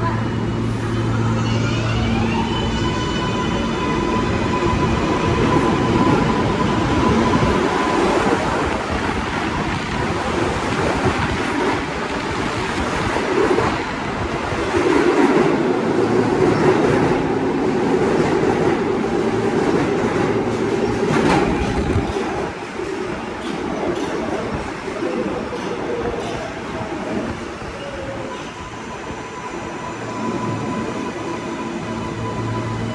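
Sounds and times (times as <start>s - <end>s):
train wheels rumbling on rails: 0.0s - 32.9s
clickety-clack of rail joints: 18.0s - 27.4s.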